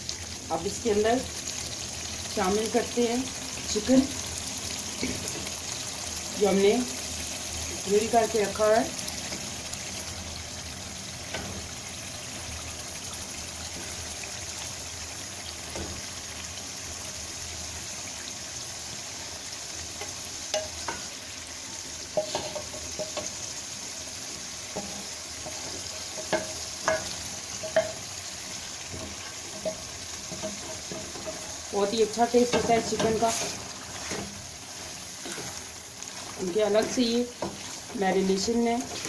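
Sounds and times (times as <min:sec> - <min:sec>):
food sizzling in a metal pot: 0:00.0 - 0:39.0
spatula scraping a pot: 0:32.4 - 0:38.0.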